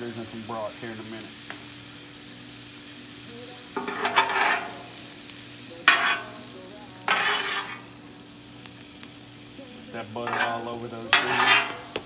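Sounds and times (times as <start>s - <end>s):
vegetables sizzling on griddle: 0.0s - 12.0s
metal spatula stirring: 3.8s - 5.0s, 5.8s - 7.9s, 10.2s - 12.0s.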